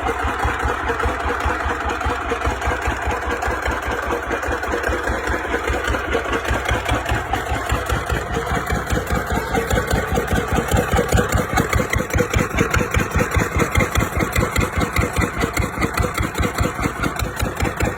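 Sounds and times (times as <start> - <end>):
diesel engine idling: 0.0 - 17.9.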